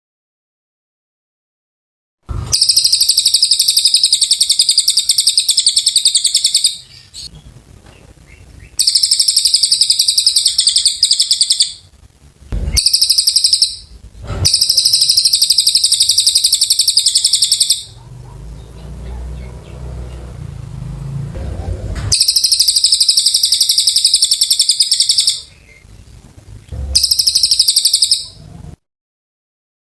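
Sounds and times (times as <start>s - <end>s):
bird singing high trills: 2.3s - 7.4s, 8.2s - 11.9s, 12.6s - 21.3s, 22.1s - 25.8s, 26.8s - 28.5s.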